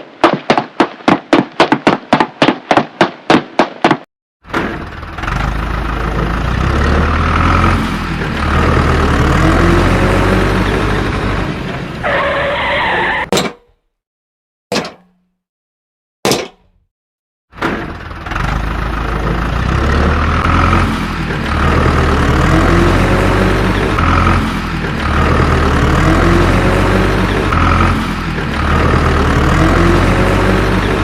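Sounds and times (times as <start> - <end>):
vehicle engine rumbling: 4.5 - 12.4, 17.6 - 31.0.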